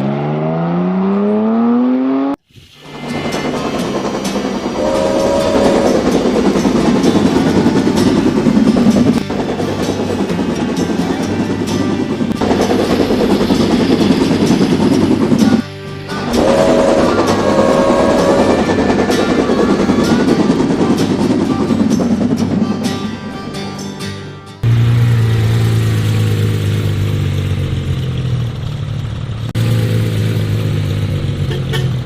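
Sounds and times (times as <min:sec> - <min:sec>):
toy train running on track: 0:02.8 - 0:23.3
music: 0:02.8 - 0:24.7
short held tones: 0:04.8 - 0:07.4, 0:16.2 - 0:20.3.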